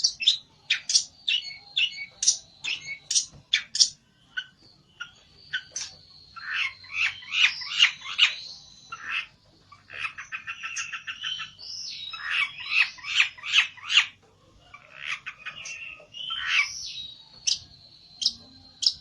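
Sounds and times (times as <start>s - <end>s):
songbird chattering and trilling: 0.0s - 19.0s.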